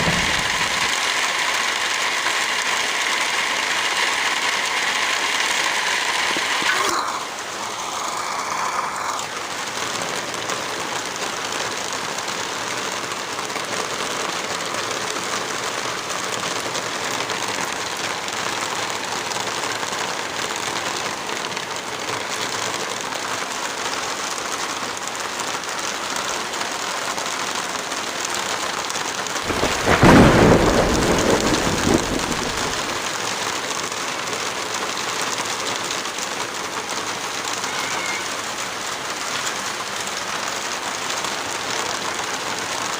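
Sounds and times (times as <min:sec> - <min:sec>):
loud deep rumble: 0:00.0 - 0:01.0
heavy rain: 0:00.0 - 0:42.9.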